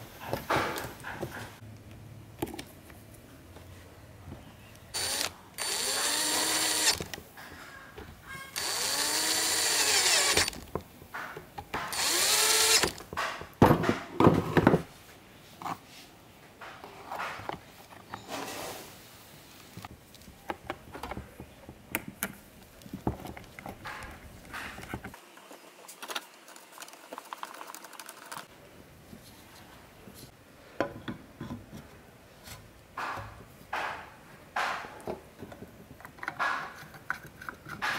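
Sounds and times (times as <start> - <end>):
small power tool motor bursts: 5.0 - 7.1, 8.5 - 10.6, 11.9 - 13.0
hard parts clicking and rattling: 5.0 - 14.0
sharp knocks: 33.0 - 35.0.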